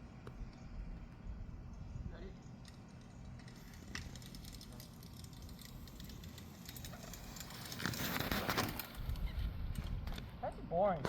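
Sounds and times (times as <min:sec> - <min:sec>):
tyres crackling over rough ground: 0:02.1 - 0:11.0
small rattles: 0:02.5 - 0:10.0.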